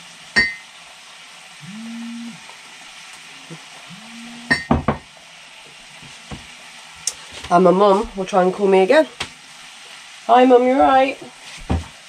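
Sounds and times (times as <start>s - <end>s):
food sizzling in frying pan: 0.0s - 12.0s
phone vibrating: 1.6s - 2.4s, 3.9s - 4.8s
knocks: 4.5s - 5.0s.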